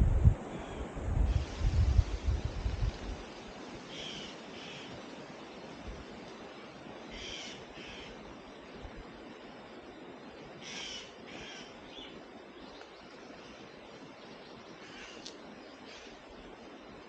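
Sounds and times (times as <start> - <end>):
steady background hiss: 0.0 - 17.0
bird harsh calls: 7.1 - 8.2, 10.6 - 12.2, 14.8 - 15.3.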